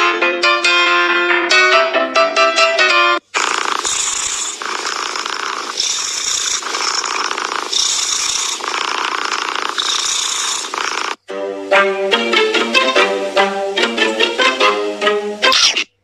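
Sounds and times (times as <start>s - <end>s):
cat purring: 3.2s - 11.3s.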